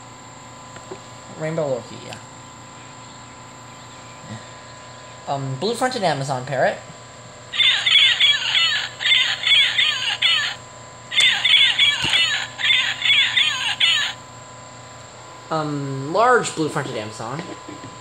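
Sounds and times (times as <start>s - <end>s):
toy playing parrot squawks: 7.5s - 14.2s.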